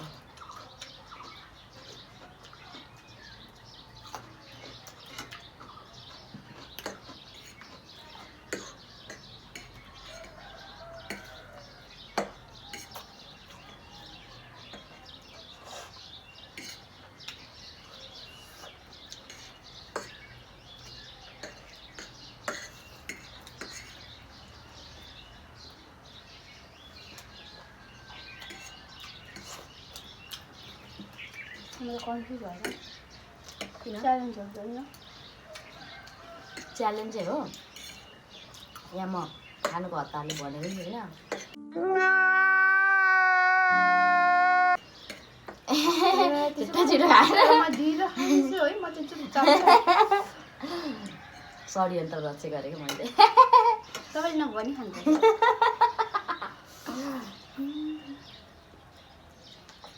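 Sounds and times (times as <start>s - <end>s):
cutlery clinking against plates: 0.0s - 13.9s, 14.6s - 24.4s, 28.2s - 34.0s, 34.9s - 38.9s, 39.6s - 41.6s, 45.0s - 46.3s, 51.0s - 51.7s, 52.8s - 54.2s
faint bird chirps: 53.2s - 59.9s.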